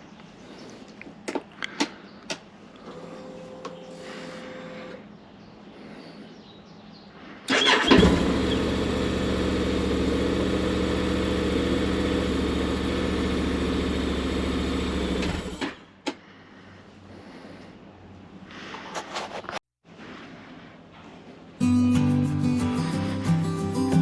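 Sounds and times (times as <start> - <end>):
motorcycle engine starting and idling: 7.5 - 15.9.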